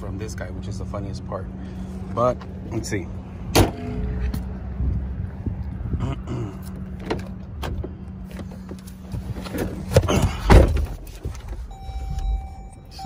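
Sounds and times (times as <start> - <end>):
car cabin running hum: 6.7 - 13.0
knocks and thuds: 10.0 - 11.0
steady high tone: 11.7 - 13.0.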